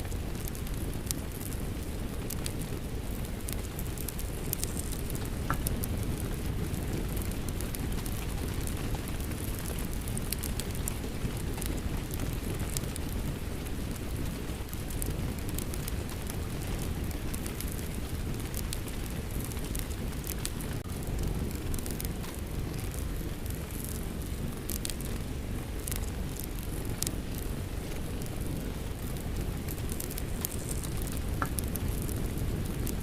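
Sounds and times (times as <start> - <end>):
fireplace fire crackling: 0.0 - 33.0
steady rain: 0.0 - 33.0.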